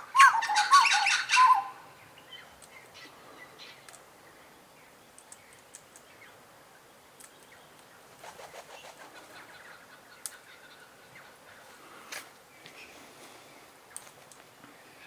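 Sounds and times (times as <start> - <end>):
bird calls and chirps: 0.0 - 11.9
rapid wing-flapping: 8.1 - 9.5.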